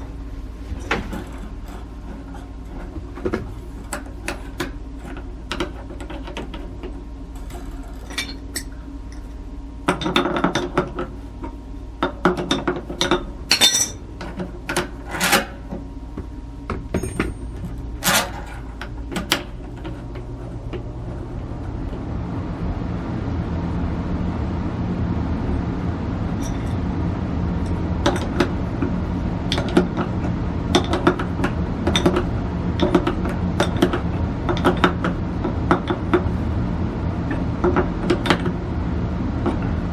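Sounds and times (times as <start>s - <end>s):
steady low hum: 0.0s - 39.9s
metal tools clinking: 7.9s - 9.2s, 13.5s - 14.0s.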